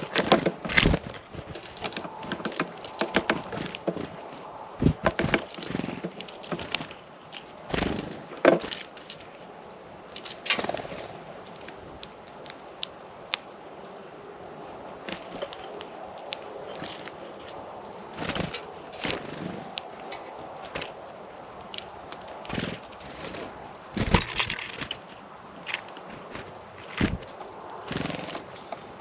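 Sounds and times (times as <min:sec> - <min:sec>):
beaks tapping on feeder: 0:00.0 - 0:04.2.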